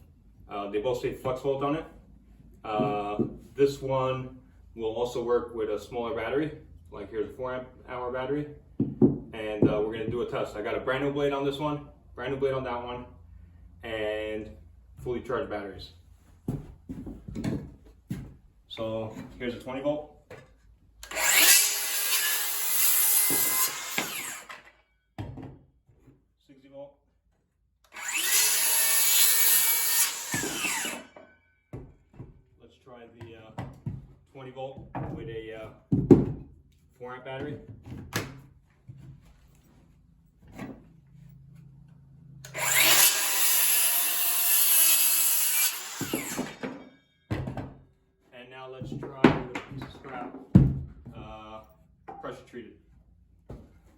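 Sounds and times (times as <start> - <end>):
circular saw cutting wood: 21.0 - 24.7, 27.9 - 31.4, 42.4 - 46.9
knock: 35.9 - 36.5.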